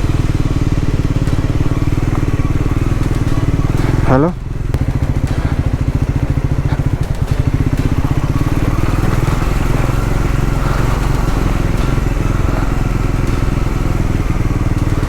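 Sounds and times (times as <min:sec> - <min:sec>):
motorcycle engine at low revs: 0:00.0 - 0:15.0.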